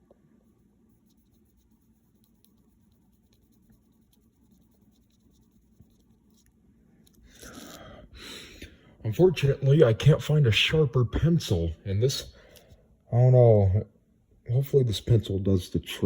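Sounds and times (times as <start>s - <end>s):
pencil scratching on paper: 0.4s - 6.5s.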